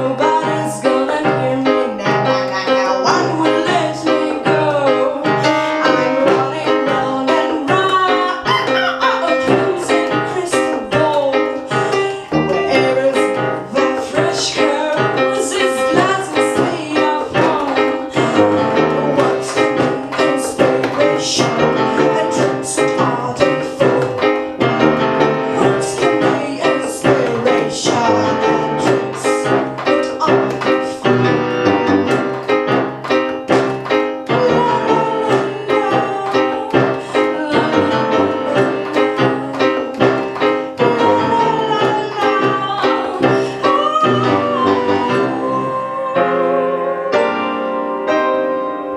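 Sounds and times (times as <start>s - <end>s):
person singing: 0.0s - 32.8s, 33.5s - 47.9s
piano or keyboard: 0.0s - 48.9s
sharp percussive beat: 15.9s - 43.5s.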